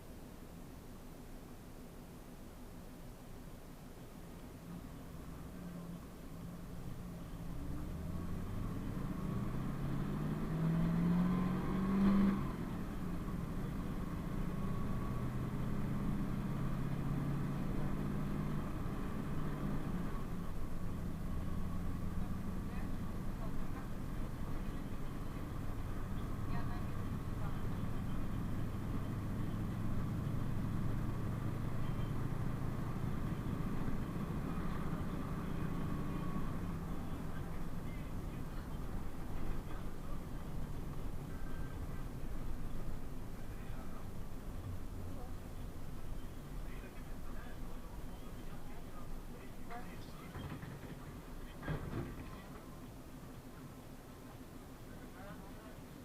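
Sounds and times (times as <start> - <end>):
road noise: 0.0 - 56.0
bus engine pulling away: 4.6 - 56.0.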